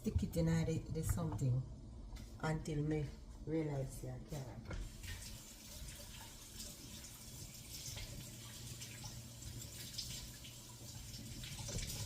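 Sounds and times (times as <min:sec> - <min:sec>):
low steady hum: 0:00.0 - 0:12.0
water drips and splashes: 0:04.7 - 0:12.0.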